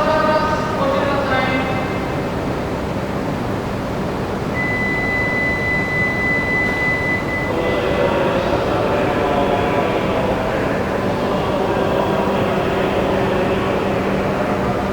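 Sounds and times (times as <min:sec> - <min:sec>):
station platform rumble and hiss: 0:00.0 - 0:14.9
high-pitched tone: 0:04.6 - 0:07.6.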